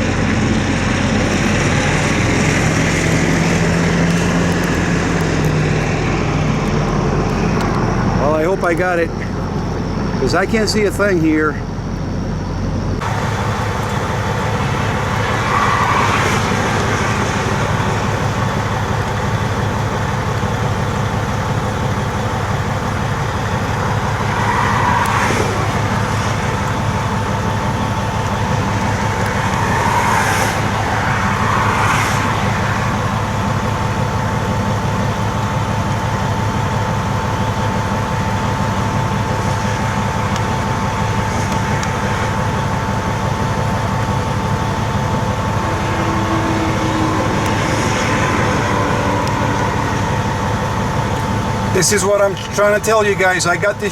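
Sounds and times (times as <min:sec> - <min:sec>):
diesel truck engine idling: 0:00.0 - 0:53.9
thin steady whine: 0:00.0 - 0:53.9
passing noise: 0:22.5 - 0:53.8.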